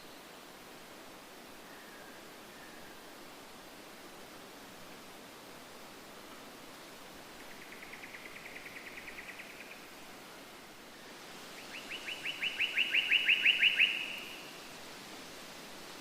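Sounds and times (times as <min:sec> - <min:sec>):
steady hiss: 0:00.0 - 0:16.0
songbird trilling: 0:11.7 - 0:14.4.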